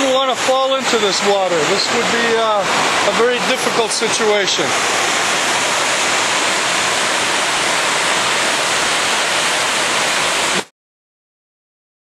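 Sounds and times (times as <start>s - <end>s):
floodwater rushing: 0.0s - 10.7s.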